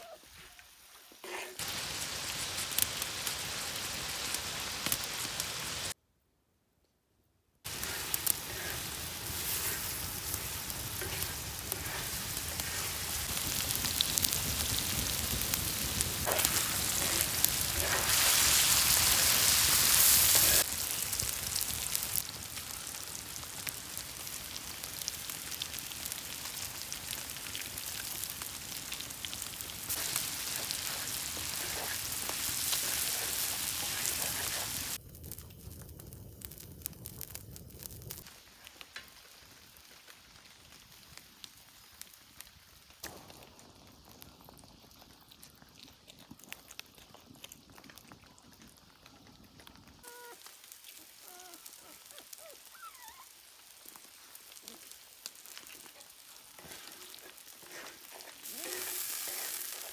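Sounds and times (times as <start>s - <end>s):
meat and onions sizzling in oil: 0.0s - 6.0s, 7.7s - 59.9s
wooden spatula scraping pan: 11.0s - 12.9s.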